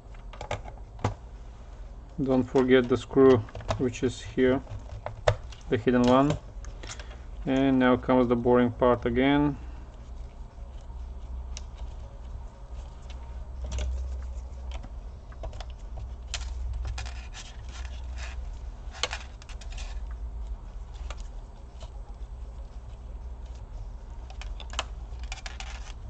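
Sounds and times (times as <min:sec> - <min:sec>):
steady low hum: 0:00.0 - 0:26.0
tools clicking and scraping on laptop: 0:02.2 - 0:08.4, 0:09.4 - 0:26.0.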